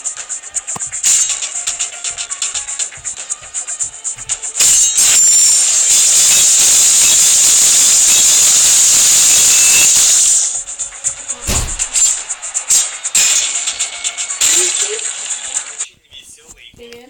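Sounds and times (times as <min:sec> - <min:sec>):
rapid clicking: 0:00.0 - 0:06.8
loud steady hiss: 0:00.0 - 0:13.2.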